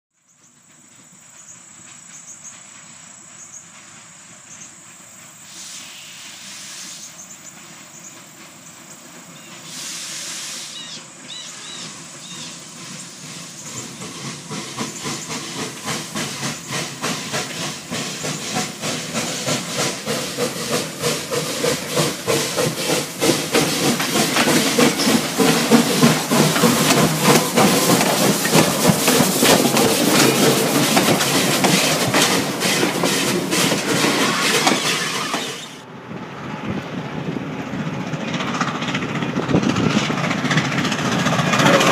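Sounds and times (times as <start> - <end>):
hissing bursts: 9.2 - 11.2, 11.8 - 35.8
rhythmic mechanical clattering: 13.8 - 35.3.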